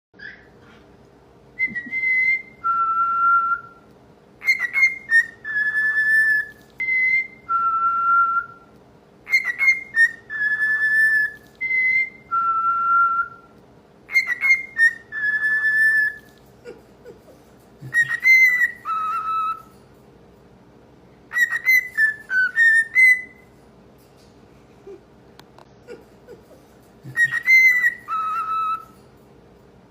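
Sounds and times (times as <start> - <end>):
cockatiel whistling: 1.6 - 3.8, 4.4 - 16.3, 17.8 - 19.7, 21.3 - 23.5, 27.0 - 29.0.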